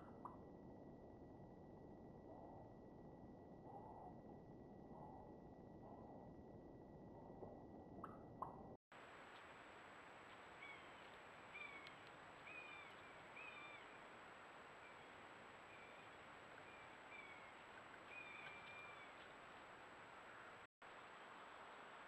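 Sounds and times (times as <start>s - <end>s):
microphone hiss and whine: 9.0s - 22.0s
bird chirping: 10.5s - 14.0s, 14.8s - 19.3s.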